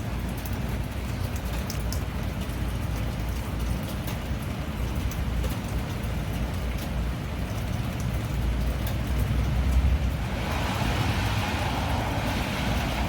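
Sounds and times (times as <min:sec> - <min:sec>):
rain falling: 0:00.0 - 0:13.0
low rumble: 0:09.8 - 0:13.0.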